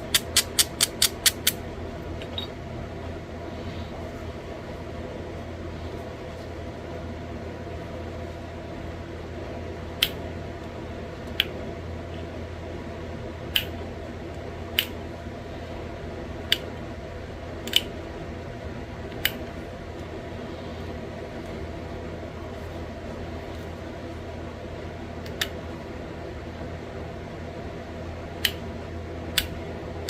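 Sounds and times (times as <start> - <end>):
stone flaking clicks: 0.0 - 1.6
steady low hum: 0.0 - 30.0.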